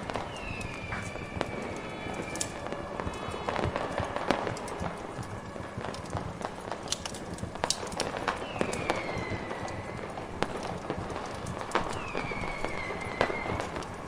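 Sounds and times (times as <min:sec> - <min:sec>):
thin descending whistle: 0:00.0 - 0:03.6, 0:08.4 - 0:10.1, 0:11.9 - 0:13.8
fire crackles and pops: 0:00.0 - 0:14.0.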